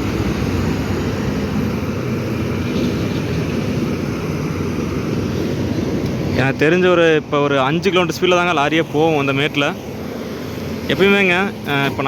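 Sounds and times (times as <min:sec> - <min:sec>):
lorry diesel engine labouring: 0:00.0 - 0:06.4.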